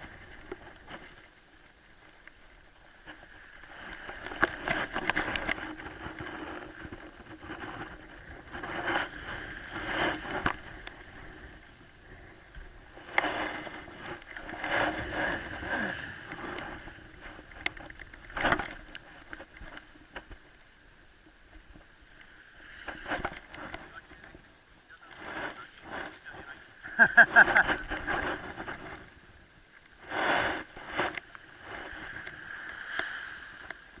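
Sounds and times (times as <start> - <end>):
sea water washing and splashing: 0.0 - 19.4, 29.7 - 34.0.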